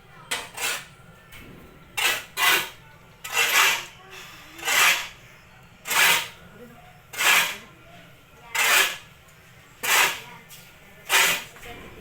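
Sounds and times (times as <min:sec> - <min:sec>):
sawdust mixture being scraped: 0:02.0 - 0:03.9, 0:04.6 - 0:05.2, 0:05.8 - 0:06.4, 0:07.1 - 0:07.7, 0:08.5 - 0:09.1, 0:09.8 - 0:10.4, 0:11.0 - 0:11.6.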